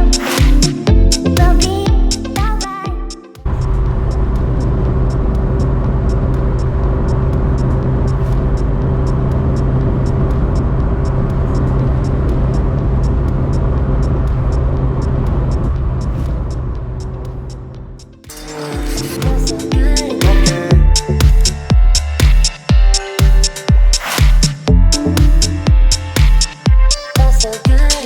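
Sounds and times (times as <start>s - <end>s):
car engine running steadily: 3.5s - 18.1s.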